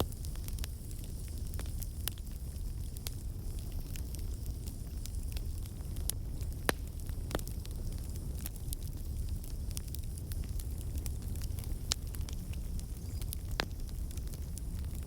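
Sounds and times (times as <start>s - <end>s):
fire crackling and popping: 0.0s - 15.0s.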